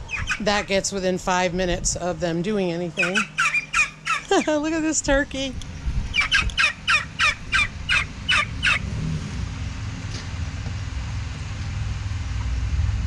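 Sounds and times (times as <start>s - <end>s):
turkey calling: 0.0s - 0.9s, 2.9s - 5.0s, 6.1s - 8.9s
exhaust fan hum: 0.0s - 13.0s.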